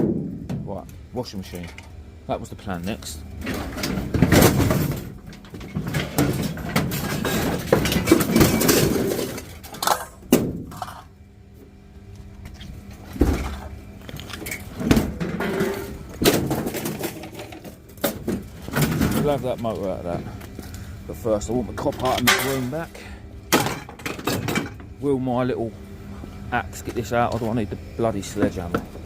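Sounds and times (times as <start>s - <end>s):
washing machine clanking and scraping: 2.6s - 11.1s, 13.0s - 24.9s, 26.8s - 29.0s.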